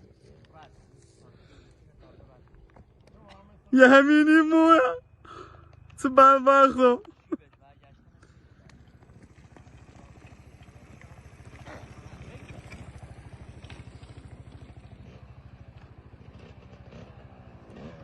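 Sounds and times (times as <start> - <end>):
motorcycle engine idling: 0.0 - 18.0
motorcycle engine revving: 3.7 - 18.0.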